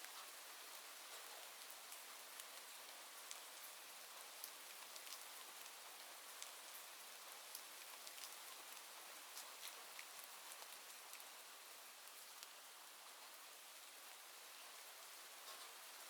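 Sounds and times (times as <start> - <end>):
raindrop ticks: 4.4 - 5.8.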